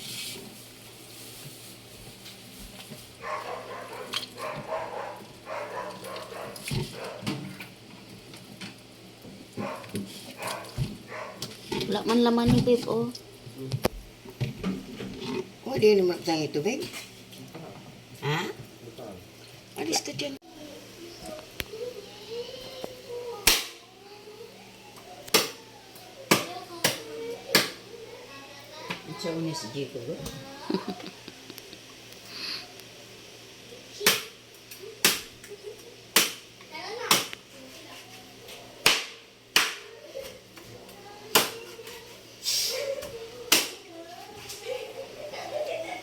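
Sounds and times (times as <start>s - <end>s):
scraping hiss: 42.3s - 43.0s.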